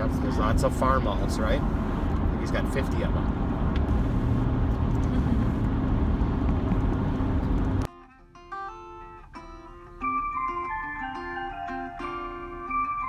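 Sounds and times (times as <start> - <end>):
car cabin road and engine noise: 0.0 - 7.9
plucked guitar music: 7.6 - 13.0.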